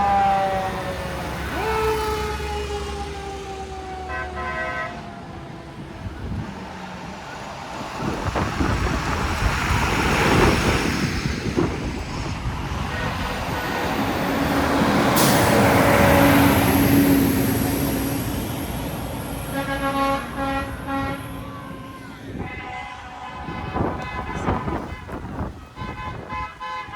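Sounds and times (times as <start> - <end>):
trucks passing: 0.0 - 26.9
truck horn: 4.0 - 5.2, 19.4 - 26.9.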